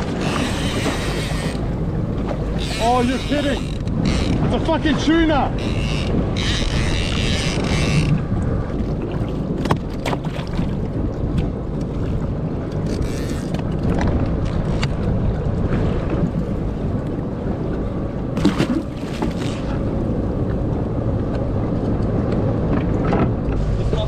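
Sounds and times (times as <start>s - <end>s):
boat motor rumbling: 0.0s - 24.0s
wind buffeting microphone: 0.0s - 24.0s.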